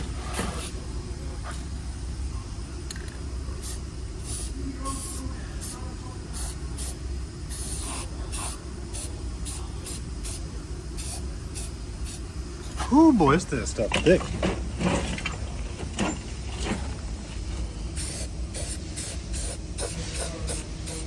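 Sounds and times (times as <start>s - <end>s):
steady low hum: 0.0s - 21.0s
aerosol spray can hissing: 3.6s - 5.8s, 6.4s - 10.4s, 11.0s - 12.2s, 18.0s - 21.0s.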